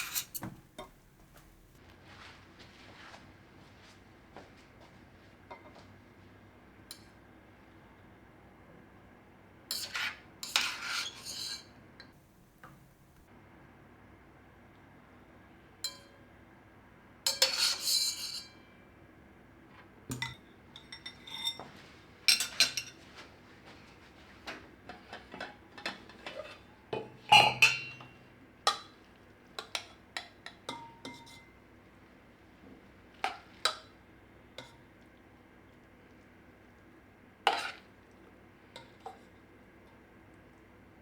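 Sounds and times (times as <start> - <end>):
utensil scraping a dish: 0.0 - 1.7, 9.7 - 11.7, 37.5 - 37.9
utensils clinking against dishes: 0.0 - 1.7, 9.7 - 13.2, 17.3 - 18.8, 20.1 - 23.1, 24.9 - 29.0.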